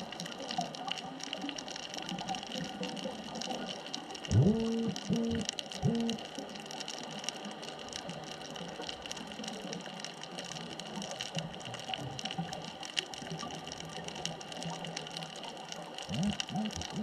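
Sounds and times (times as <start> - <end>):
faint scattered clicks: 0.0 - 17.0
steady underwater hiss: 0.0 - 17.0
low gurgling: 4.2 - 6.2, 16.0 - 17.0.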